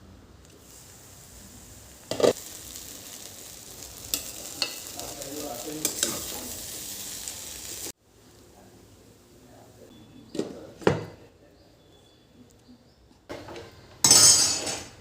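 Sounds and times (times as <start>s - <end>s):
food sizzling in a pan: 0.5s - 8.5s.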